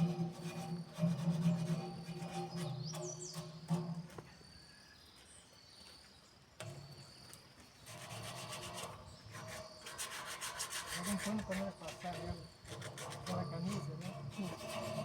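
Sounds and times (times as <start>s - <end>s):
sanding on iron: 7.9s - 15.0s.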